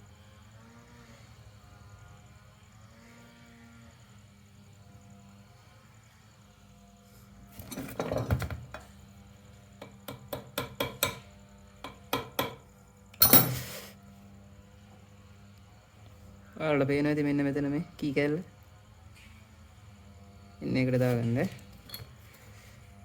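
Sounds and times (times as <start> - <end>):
metal knock: 9.8 - 11.2, 11.9 - 12.6.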